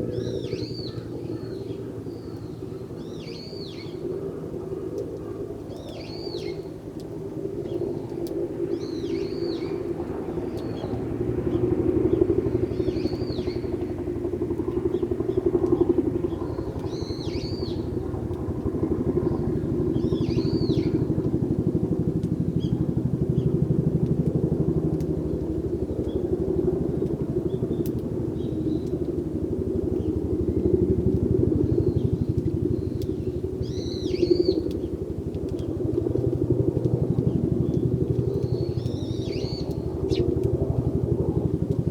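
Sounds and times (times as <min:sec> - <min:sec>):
sparrows chirping: 0:00.1 - 0:04.0, 0:16.3 - 0:17.9, 0:31.7 - 0:34.9, 0:37.6 - 0:40.3.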